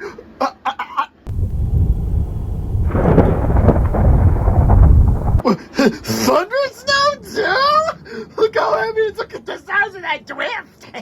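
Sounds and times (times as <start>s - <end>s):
thunder rumbling: 1.3s - 5.4s.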